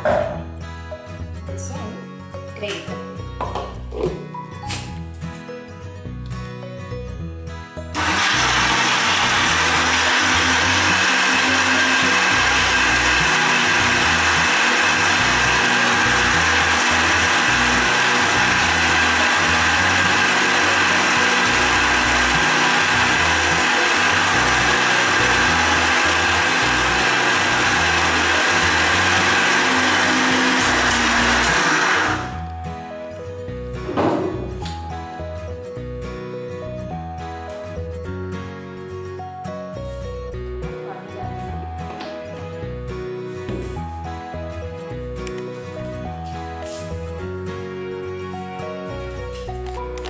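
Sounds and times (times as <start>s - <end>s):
electric mixer grinder running: 8.0s - 32.5s.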